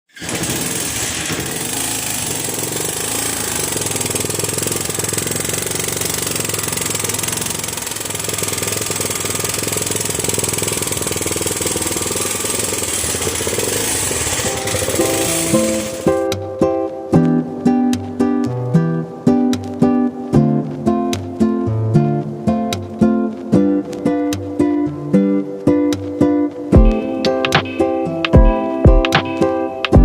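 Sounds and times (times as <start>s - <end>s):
motorcycle engine idling: 0.2s - 16.3s, 26.7s - 27.7s.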